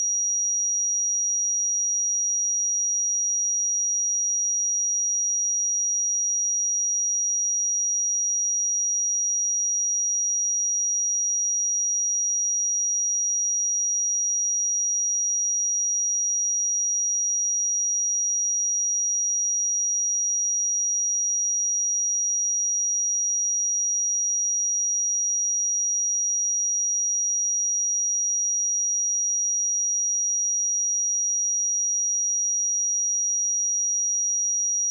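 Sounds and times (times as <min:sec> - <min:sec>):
high-pitched sine test tone: 0:22.8 - 0:34.9.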